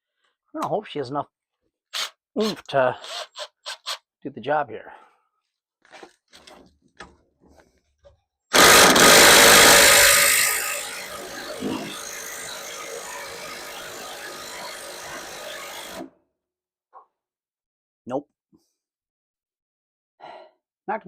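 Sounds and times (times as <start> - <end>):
cordless impact wrench hammering: 8.5 - 16.1.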